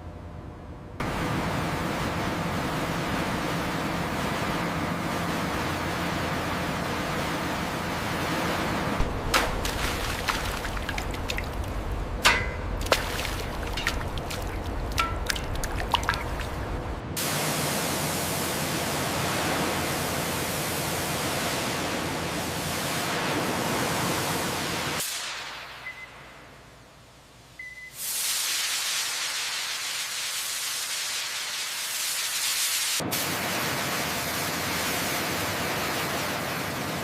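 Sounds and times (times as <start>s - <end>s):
low hum: 9.0s - 17.2s
sharp knocks and clicks: 12.2s - 16.6s
smooth even hiss: 25.0s - 25.9s, 28.0s - 33.0s.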